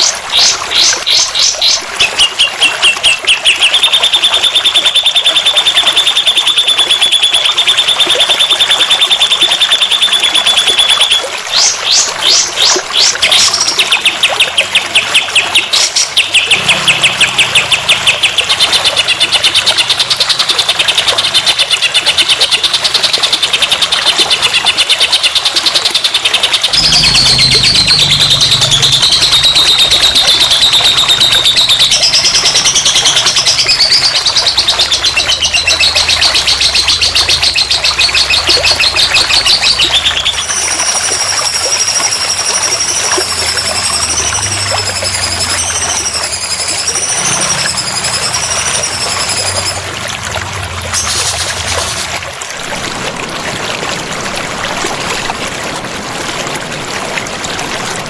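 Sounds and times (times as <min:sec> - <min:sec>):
songbird chattering trills: 0:26.6 - 0:49.8.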